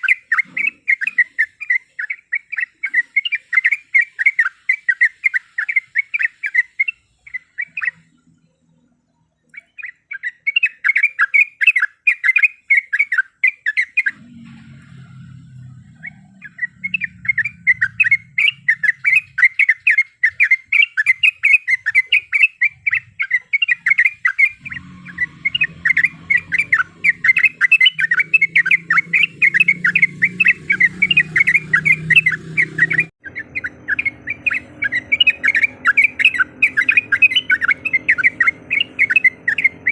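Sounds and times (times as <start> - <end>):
bird chattering calls: 0.0 - 8.0, 15.6 - 39.9
low hum: 14.1 - 19.3, 24.6 - 39.9.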